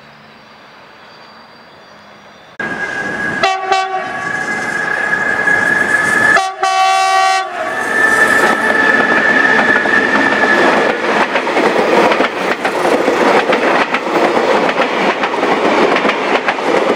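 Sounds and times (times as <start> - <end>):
train horn tone: 2.6 - 9.6
fuller horn blast: 3.4 - 4.2, 6.4 - 7.8
train wheels clattering over rail joints: 8.4 - 16.9.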